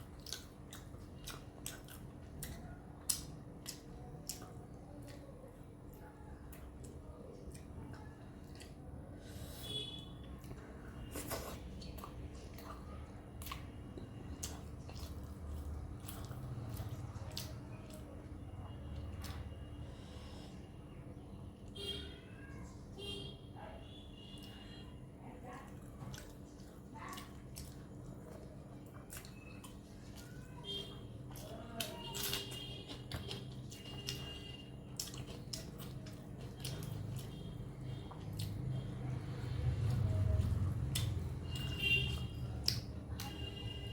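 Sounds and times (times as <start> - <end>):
low steady hum: 0.0 - 43.9
wet chewing mouth smacks: 0.1 - 5.3, 25.8 - 30.4, 31.2 - 38.9, 39.6 - 43.4.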